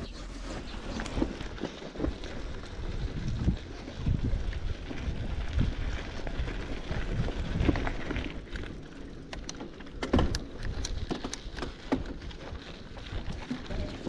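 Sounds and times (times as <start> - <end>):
wind rumbling on microphone: 0.0 - 14.0
sharp irregular clicks and knocks: 9.3 - 12.2.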